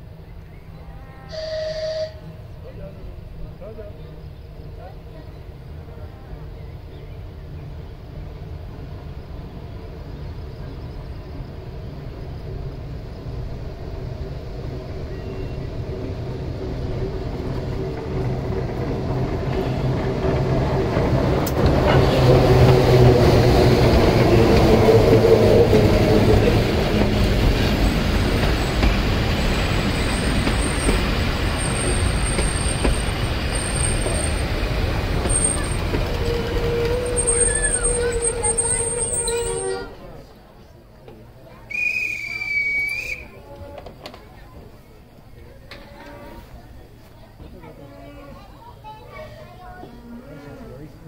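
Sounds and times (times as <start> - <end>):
train hum and rumble: 0.0 - 51.0
train wheels clattering on rails: 15.3 - 40.4.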